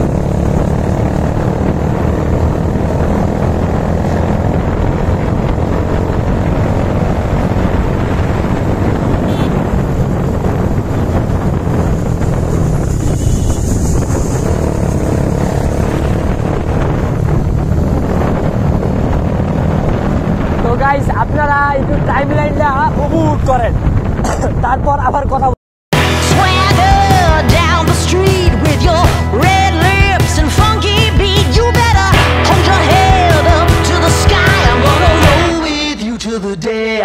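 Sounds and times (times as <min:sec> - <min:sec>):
motorcycle engine running: 0:00.0 - 0:20.6, 0:26.0 - 0:35.9
wind rushing on microphone: 0:00.0 - 0:25.6.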